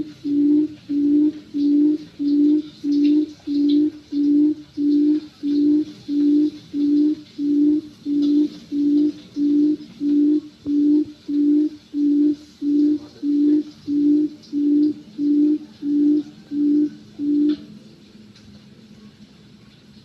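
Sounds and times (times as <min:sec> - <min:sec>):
quail hooting: 0:00.0 - 0:17.7.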